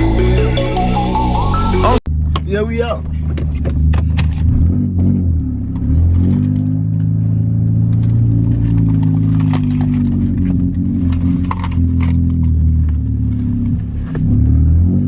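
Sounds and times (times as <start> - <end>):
car engine pulling away: 3.0 - 15.0.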